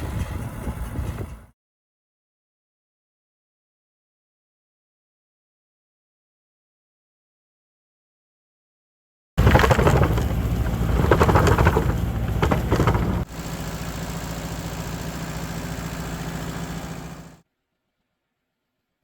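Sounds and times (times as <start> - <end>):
harvesting machine engine clattering: 9.4 - 17.4.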